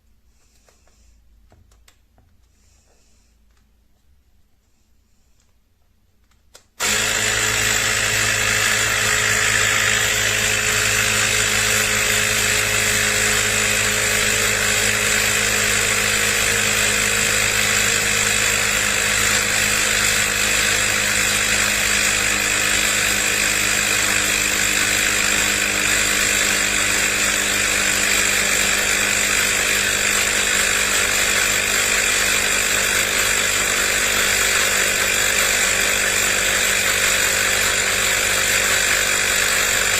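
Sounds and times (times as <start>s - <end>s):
air compressor humming: 6.8s - 39.9s.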